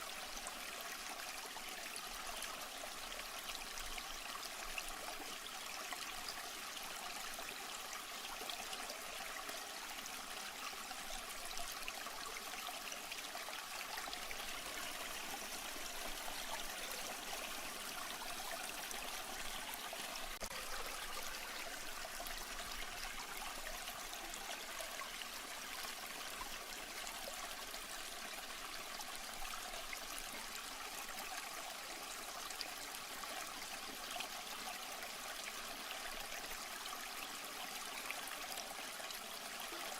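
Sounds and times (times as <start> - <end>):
trickling water: 0.0 - 39.9.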